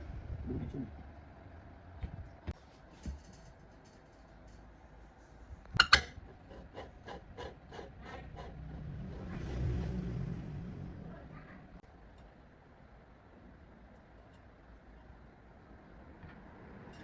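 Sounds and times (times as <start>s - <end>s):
rasping file strokes: 6.2s - 9.9s.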